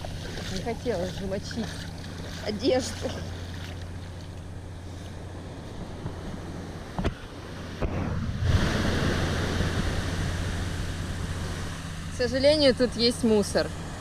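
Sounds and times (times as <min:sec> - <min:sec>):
sea waves washing on beach: 0:00.0 - 0:14.0
wind rumbling on microphone: 0:03.4 - 0:13.0.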